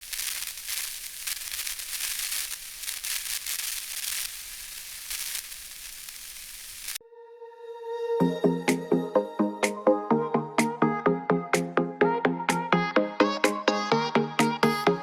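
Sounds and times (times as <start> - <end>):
crackling static hiss: 0.0 - 7.0.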